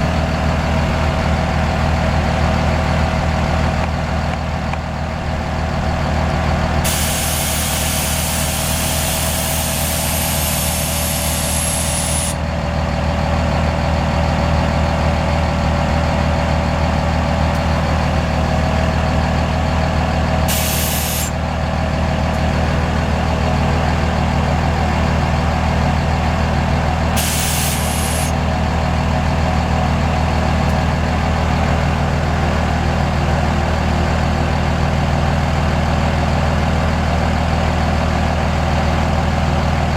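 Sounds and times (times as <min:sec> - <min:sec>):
diesel truck engine idling: 0:00.0 - 0:39.9
air hissing: 0:06.8 - 0:12.4, 0:20.5 - 0:21.4, 0:27.2 - 0:28.4.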